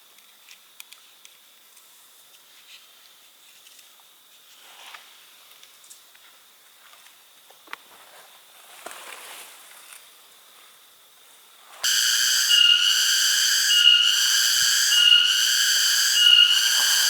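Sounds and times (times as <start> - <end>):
cicada whine: 11.8 - 17.0.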